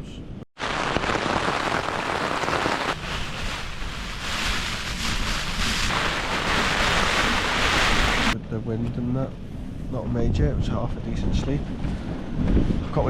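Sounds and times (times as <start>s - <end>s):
strong wind buffeting microphone: 9.4s - 13.0s.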